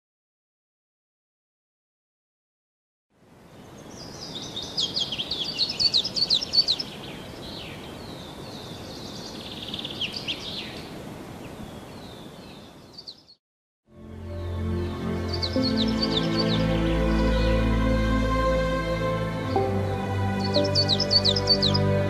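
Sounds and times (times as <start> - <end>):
small birds chirping: 3.5 - 13.4, 14.4 - 17.7, 19.5 - 22.0.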